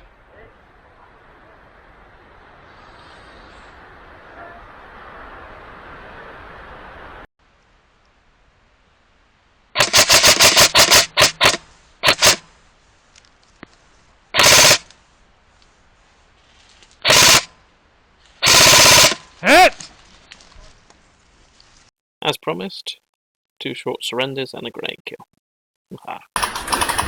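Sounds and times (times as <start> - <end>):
airsoft rifle single shots: 9.8 - 12.4, 14.4 - 14.9
airsoft rifle full-auto bursts: 9.8 - 12.5, 14.4 - 14.9, 17.0 - 17.5, 18.4 - 19.3, 26.4 - 27.0.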